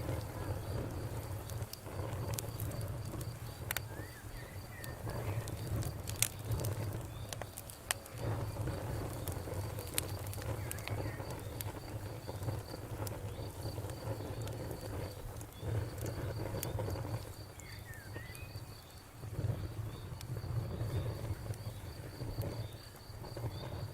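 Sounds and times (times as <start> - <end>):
campfire crackling and popping: 0.0 - 23.9
insect chirping: 0.0 - 23.9
bird-like chirps: 3.8 - 5.5, 17.6 - 18.7.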